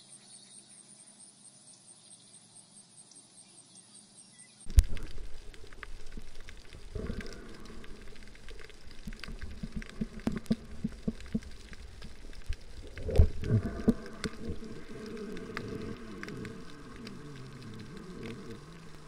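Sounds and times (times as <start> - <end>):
low hum: 4.7 - 19.0
underwater clicks and crackles: 4.7 - 19.0.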